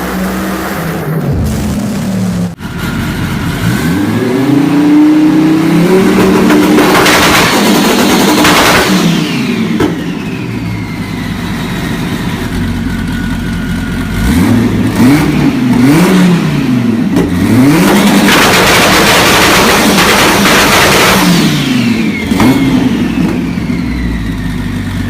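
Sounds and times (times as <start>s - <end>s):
car engine revving: 0.0s - 12.2s, 13.9s - 24.6s
exhaust cracks: 6.0s - 9.1s, 17.1s - 21.7s.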